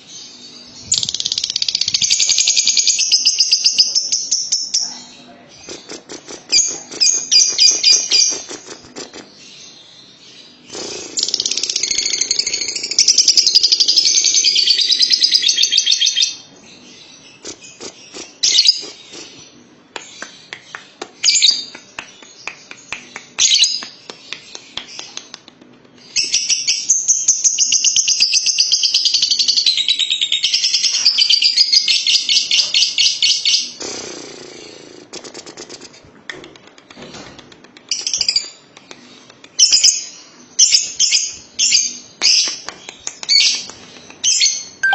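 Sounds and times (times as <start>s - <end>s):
lovebird chattering trill: 5.6s - 9.4s, 43.3s - 44.9s
bird chirps: 39.6s - 44.9s.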